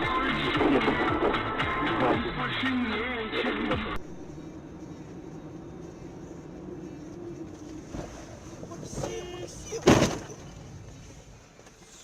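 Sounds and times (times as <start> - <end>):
car cabin hum: 3.8 - 12.0.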